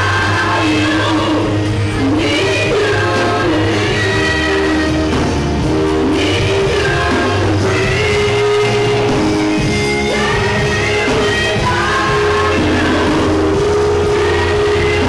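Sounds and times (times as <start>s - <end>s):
gospel singing with band: 0.0s - 15.0s.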